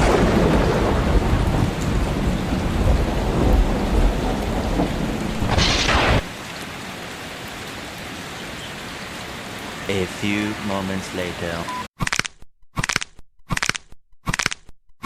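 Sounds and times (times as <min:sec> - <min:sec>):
rolling thunder rumble: 0:00.0 - 0:06.4
rain hiss: 0:00.0 - 0:11.7.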